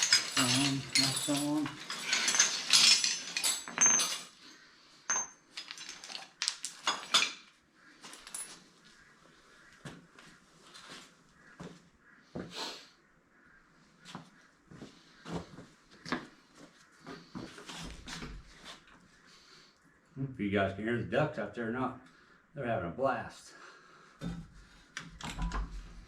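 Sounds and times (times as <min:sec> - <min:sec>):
metal tools clinking and knocking: 0:00.0 - 0:08.6, 0:24.2 - 0:26.0.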